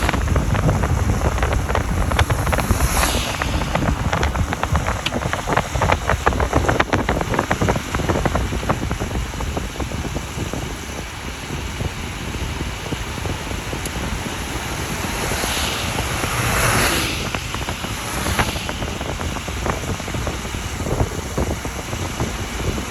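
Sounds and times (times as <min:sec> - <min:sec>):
sharp clicks and crackles: 0:00.0 - 0:08.8
road and wind noise: 0:00.0 - 0:22.9.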